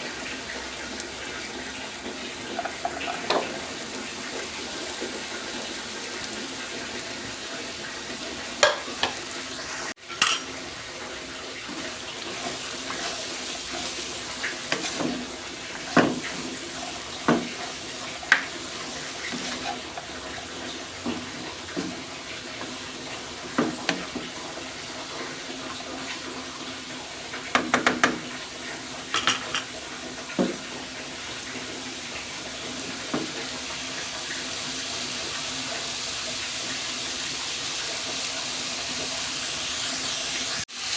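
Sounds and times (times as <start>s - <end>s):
tap water running into sink: 0.0s - 40.9s
dishes and utensils clinking: 2.5s - 3.6s, 8.6s - 9.2s, 10.1s - 10.6s, 29.1s - 29.7s.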